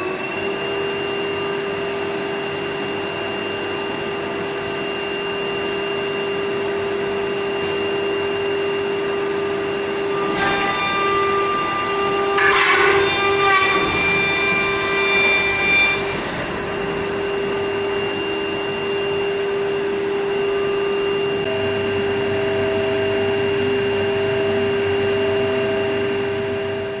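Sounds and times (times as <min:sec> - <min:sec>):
edge banding machine whining: 0:09.2 - 0:21.6.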